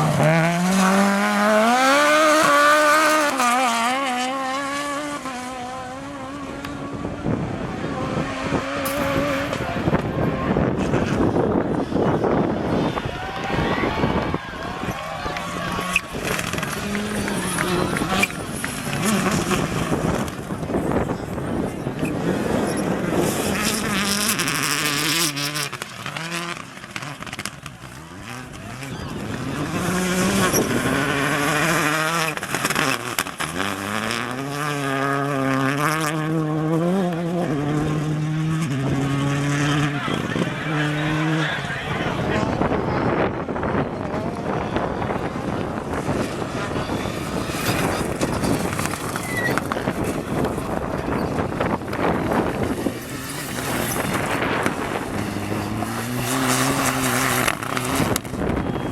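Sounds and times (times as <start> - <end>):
loud rush of noise: 0.0 - 33.9, 37.5 - 58.9
rally car engine passing: 0.0 - 58.9.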